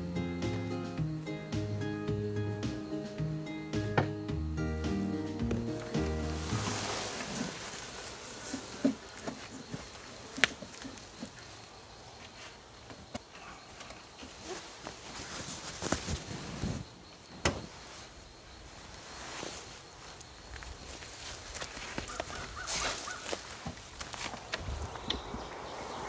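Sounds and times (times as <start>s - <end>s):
honey bees buzzing: 0.0s - 11.7s, 24.2s - 26.0s.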